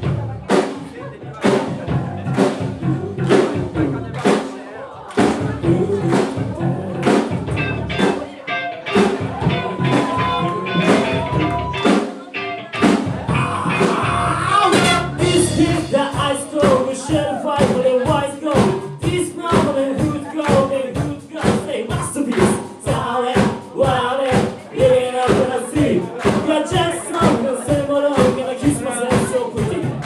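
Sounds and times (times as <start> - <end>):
bass guitar: 0.0 - 30.0
drum kit beat: 0.0 - 30.0
electric guitar: 5.1 - 23.0.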